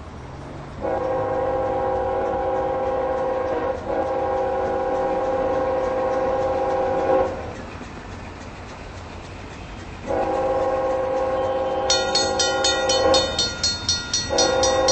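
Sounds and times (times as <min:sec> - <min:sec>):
train passing: 0:00.0 - 0:14.9
locomotive horn blasts: 0:00.8 - 0:07.4, 0:10.1 - 0:14.9.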